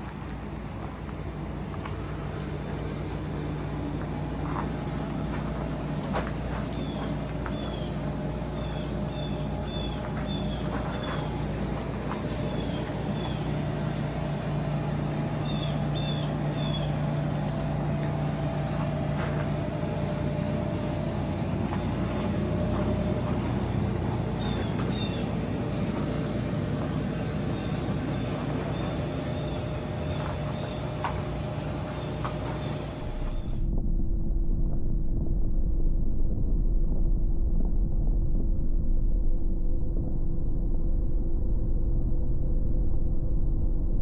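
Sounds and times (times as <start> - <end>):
car engine humming: 0.0 - 33.7
bird chirping: 6.5 - 33.6.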